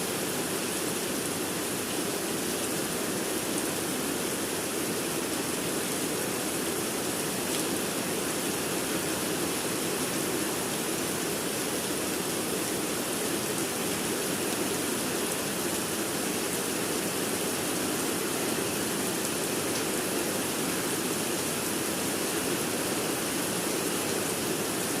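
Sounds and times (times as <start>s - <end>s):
steady rain: 0.0s - 25.0s.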